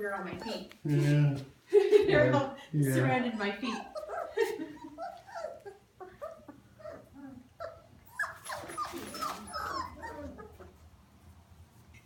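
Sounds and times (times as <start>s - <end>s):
puppies whimpering and yipping: 3.6s - 10.8s.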